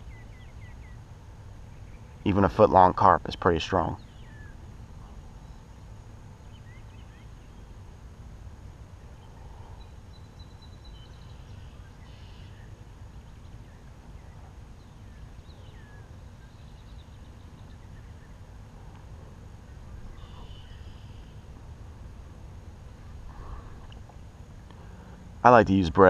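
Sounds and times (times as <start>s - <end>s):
small birds chirping: 0.0s - 8.0s, 8.8s - 26.0s
steady low rumble: 0.0s - 26.0s.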